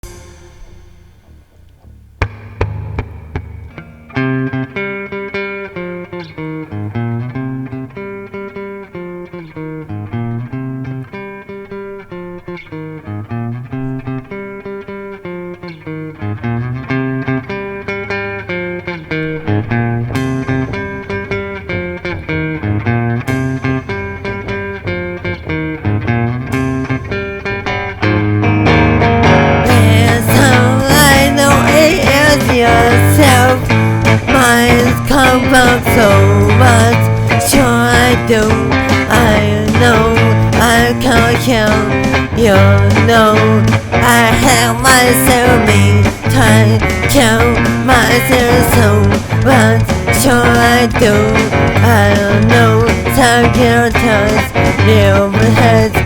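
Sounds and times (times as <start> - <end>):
sharp cymbal crashes: 0.0 - 3.8
full rock band playing: 0.0 - 7.1, 17.5 - 56.0
guitar repeating chord pattern: 0.0 - 56.0.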